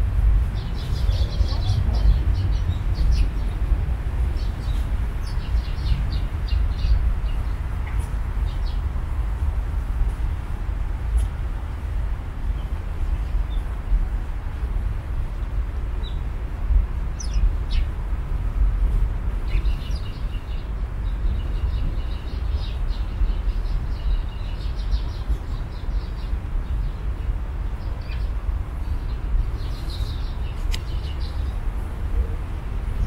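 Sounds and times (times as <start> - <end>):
steady low rumble: 0.0 - 33.0
small birds chirping: 0.5 - 8.9, 17.2 - 18.0, 19.4 - 32.4.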